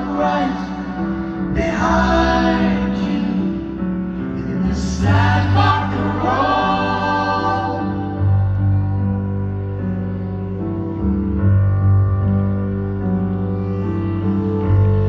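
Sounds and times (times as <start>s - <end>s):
voices singing together: 0.0s - 3.8s, 4.4s - 8.6s
sustained low notes: 0.0s - 15.0s.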